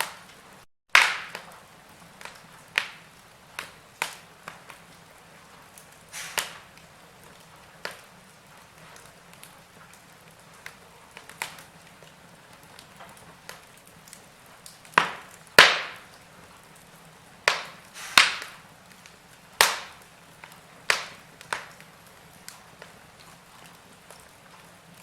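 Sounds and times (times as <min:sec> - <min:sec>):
sharp pops of burning wood: 0:00.0 - 0:25.0
wood fire crackling: 0:00.0 - 0:25.0.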